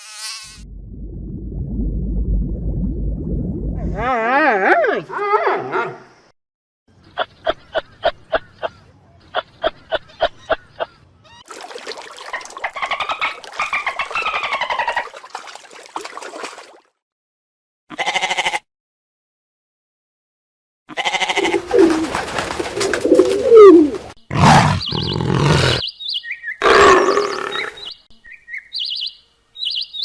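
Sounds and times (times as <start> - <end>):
wavering animal call: 21.2 - 25.8
rapid pulsed animal calls: 21.4 - 25.2
noisy sweeping animal call: 21.4 - 25.8.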